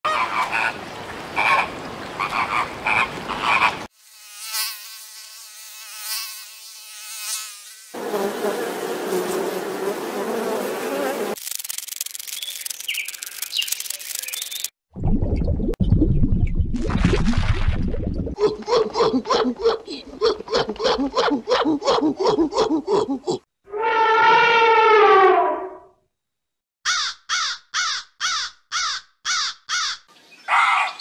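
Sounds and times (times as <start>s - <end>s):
repeated animal calls: 1.4s - 3.9s, 26.9s - 31.0s.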